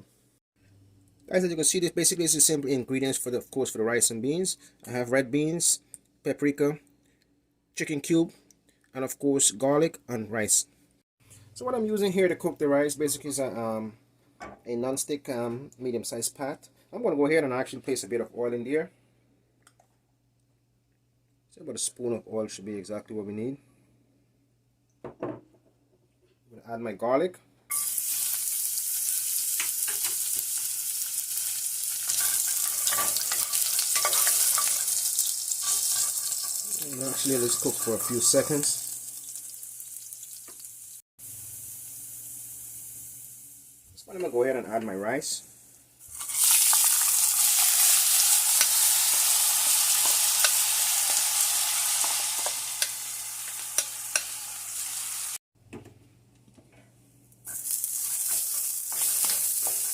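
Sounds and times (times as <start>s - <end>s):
garlic sizzling in oil: 27.7s - 43.9s, 45.6s - 55.4s, 57.4s - 59.9s
utensil stirring and scraping pot: 32.0s - 38.8s, 57.5s - 59.9s.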